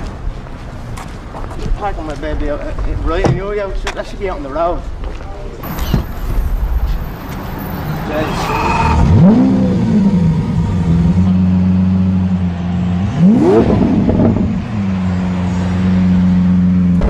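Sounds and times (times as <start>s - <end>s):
car engine revving: 5.6s - 17.0s.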